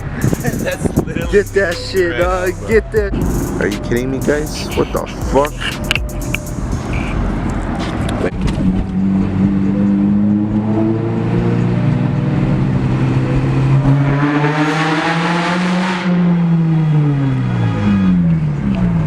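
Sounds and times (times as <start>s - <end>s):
car engine running: 0.0s - 9.7s.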